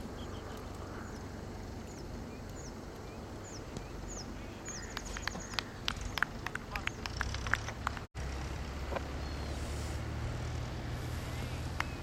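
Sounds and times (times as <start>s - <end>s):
bird calling: 0.0s - 7.8s
outdoor background noise: 0.0s - 12.0s.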